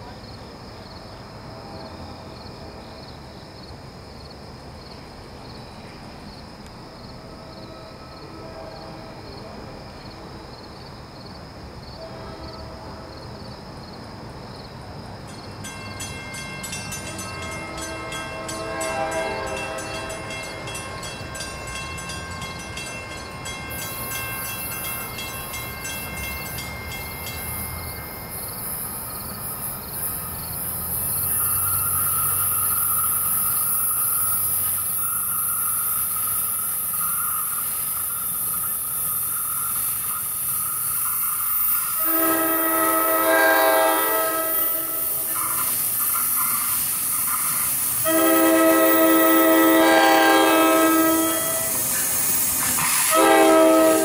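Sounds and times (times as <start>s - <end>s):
train hiss and rumble: 0.0s - 54.0s
distant train horn: 1.2s - 3.0s, 7.2s - 10.4s, 11.9s - 13.4s, 16.9s - 28.3s, 41.5s - 54.0s.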